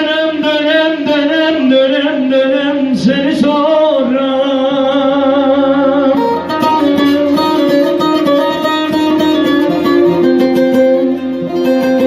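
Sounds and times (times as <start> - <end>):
held notes: 6.2 - 12.0
plucked string instrument run: 6.2 - 12.0.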